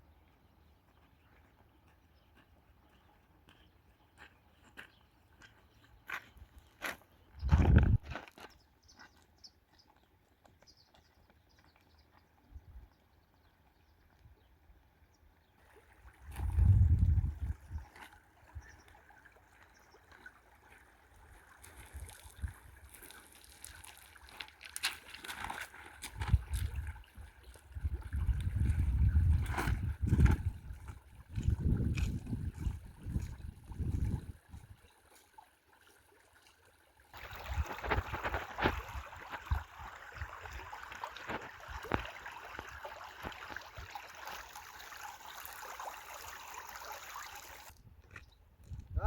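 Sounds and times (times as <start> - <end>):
river water trickling: 8.4 - 48.3
crackling little splashes: 15.5 - 47.8.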